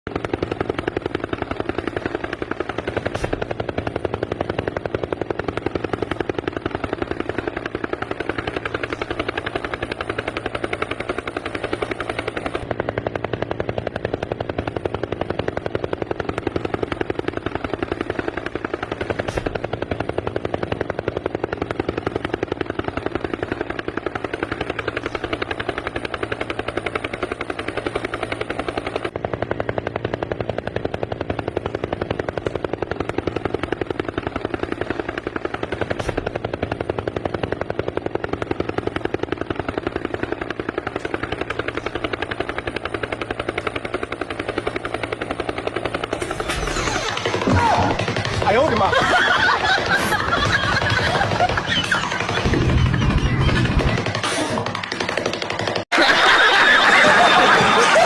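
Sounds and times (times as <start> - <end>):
helicopter rotor chopping: 0.1 - 58.0.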